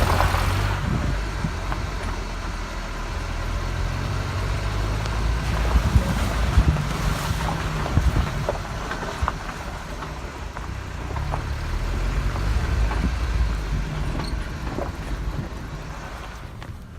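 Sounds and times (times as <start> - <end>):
vehicle engine rumble: 0.0 - 16.9.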